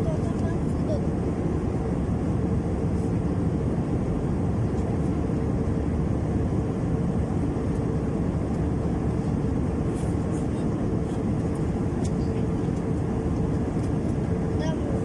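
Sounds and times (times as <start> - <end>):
jet engines and airflow: 0.0 - 15.0.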